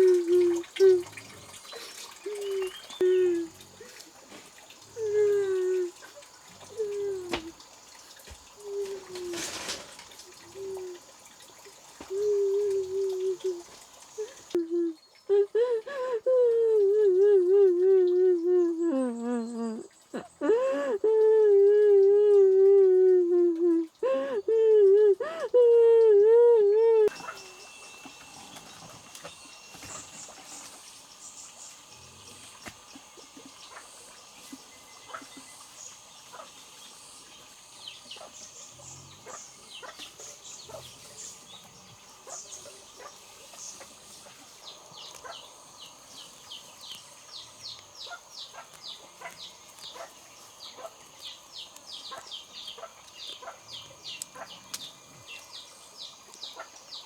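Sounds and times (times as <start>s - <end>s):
small birds chirping: 0.0s - 57.0s
faint high whine: 27.0s - 48.1s.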